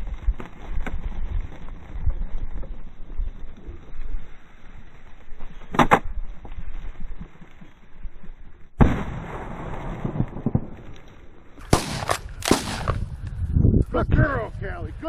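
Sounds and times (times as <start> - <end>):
loud shotgun shot: 8.8 - 10.8, 11.7 - 13.1.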